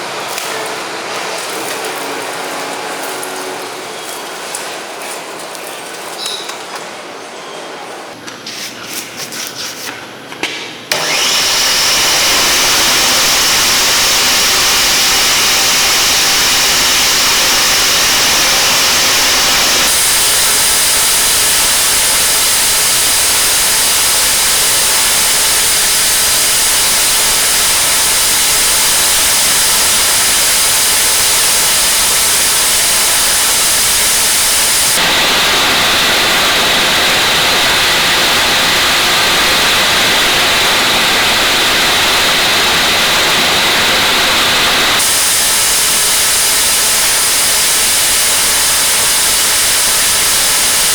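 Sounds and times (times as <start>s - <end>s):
angle grinder whining: 10.9s - 50.9s.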